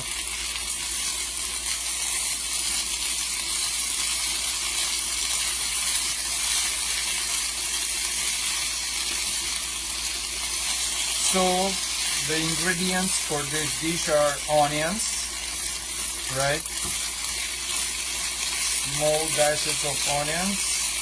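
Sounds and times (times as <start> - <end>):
potatoes sizzling in oil: 0.0 - 21.0.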